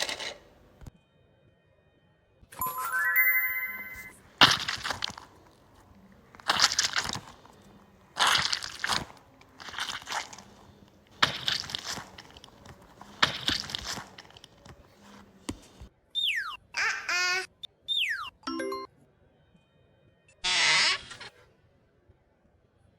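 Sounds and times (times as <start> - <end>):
slime crunching and crackling: 4.4 - 14.9.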